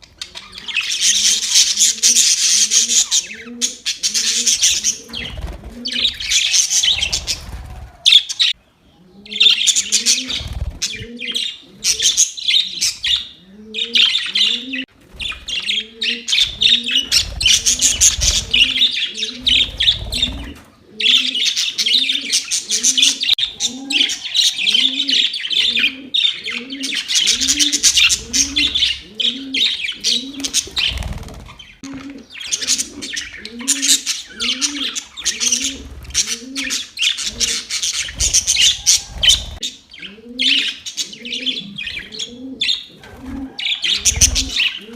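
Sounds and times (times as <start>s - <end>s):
budgerigars chattering: 9.3s - 44.9s.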